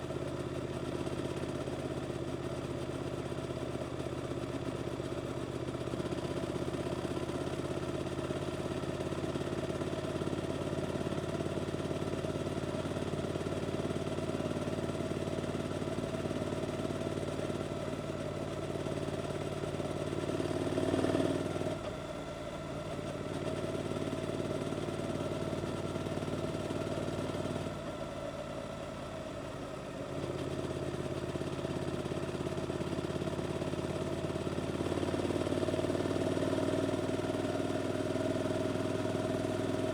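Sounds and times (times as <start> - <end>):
motorcycle engine running: 0.0 - 21.9, 22.7 - 39.9.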